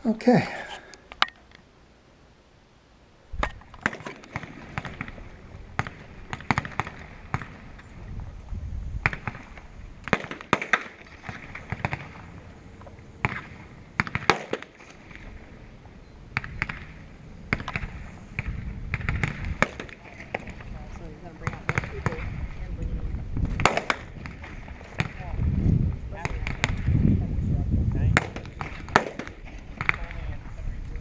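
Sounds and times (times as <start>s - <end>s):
pistol shots with echo: 3.4s - 7.8s, 9.0s - 12.4s, 13.2s - 15.4s, 16.3s - 20.7s, 21.4s - 22.3s, 23.5s - 25.3s, 28.1s - 30.2s.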